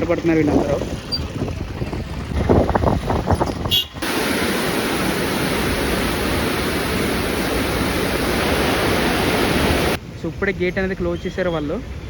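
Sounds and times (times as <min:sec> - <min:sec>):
floodwater rushing: 0:04.0 - 0:10.0.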